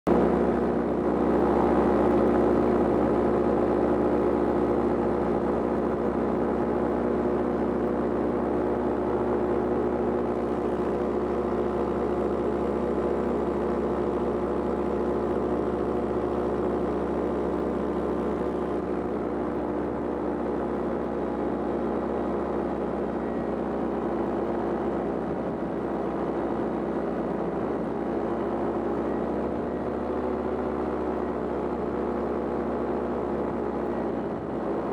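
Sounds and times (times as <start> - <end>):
paraglider engine and propeller drone: 0.1 - 34.9.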